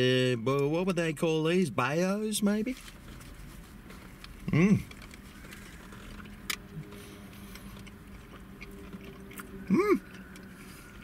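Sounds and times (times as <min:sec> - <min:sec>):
man chewing: 0:04.2 - 0:11.0
man humming: 0:09.7 - 0:10.1.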